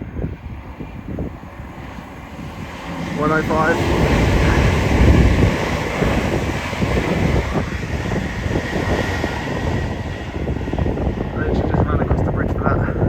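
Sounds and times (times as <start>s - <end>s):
passing diesel train rumble: 0.0s - 13.0s
wind buffeting microphone: 0.0s - 13.0s.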